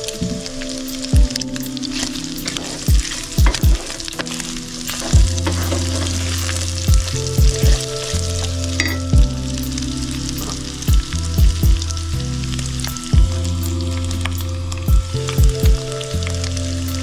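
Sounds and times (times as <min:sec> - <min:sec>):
food sizzling in pan: 0:00.0 - 0:17.0
deep low thumps: 0:05.2 - 0:10.0, 0:10.6 - 0:16.0.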